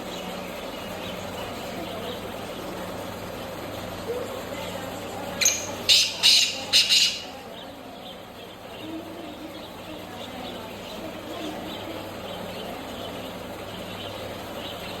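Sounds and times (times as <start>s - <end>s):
steady low hum: 0.0s - 15.0s
bird harsh grating call: 5.4s - 7.5s
faint bird chirps: 5.4s - 15.0s.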